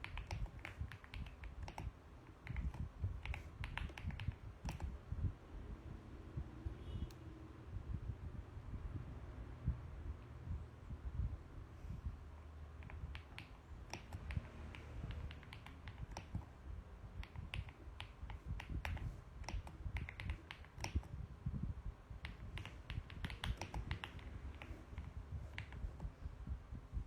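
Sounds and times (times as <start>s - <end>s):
mechanical keyboard typing: 0.0s - 5.0s, 12.8s - 16.5s, 17.1s - 21.2s, 22.2s - 26.2s.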